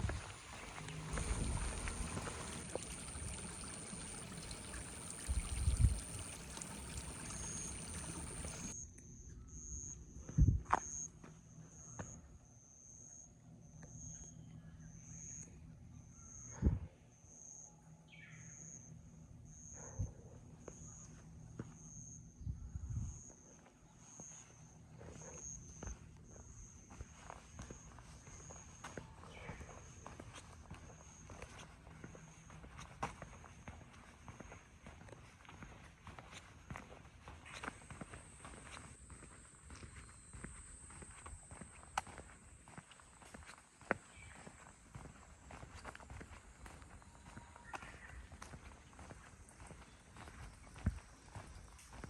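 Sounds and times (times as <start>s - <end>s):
footsteps on forest trail: 0.0s - 5.1s, 26.9s - 52.0s
stream water rushing: 0.0s - 8.7s
insect buzzing: 0.2s - 8.7s.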